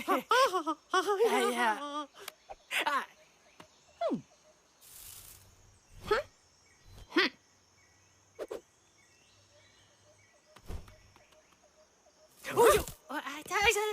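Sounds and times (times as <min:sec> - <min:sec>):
high insect chirring: 0:03.6 - 0:13.9.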